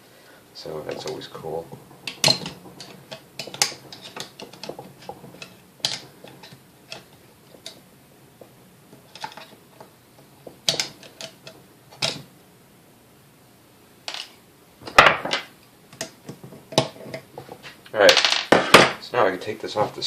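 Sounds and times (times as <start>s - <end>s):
metal parts and tools clicking: 2.0s - 7.8s, 9.1s - 9.6s, 10.7s - 12.2s.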